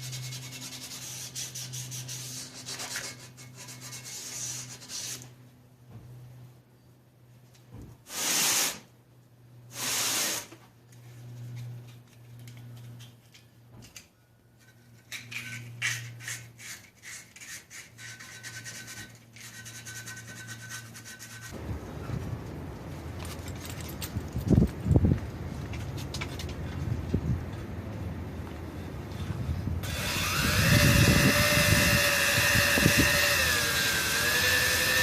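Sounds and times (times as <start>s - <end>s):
hand rubbing and scraping engine parts: 0.0s - 6.2s, 10.1s - 21.6s, 23.1s - 27.5s
steady low hum: 0.0s - 8.2s, 8.8s - 35.0s.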